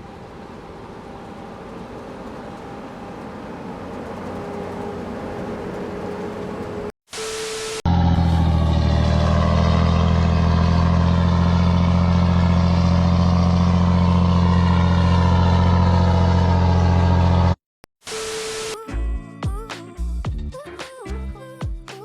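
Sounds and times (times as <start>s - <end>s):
vehicle engine running: 0.0s - 6.9s, 7.9s - 17.6s.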